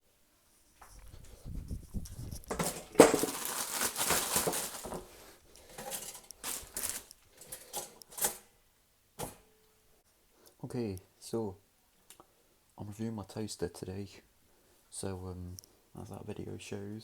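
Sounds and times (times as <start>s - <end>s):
objects rustling: 0.6s - 8.5s.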